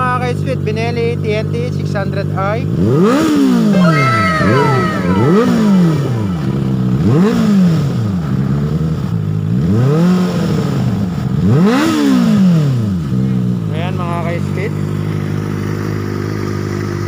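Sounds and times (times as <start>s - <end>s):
motorcycle engine revving: 2.6s - 3.8s, 5.2s - 17.0s.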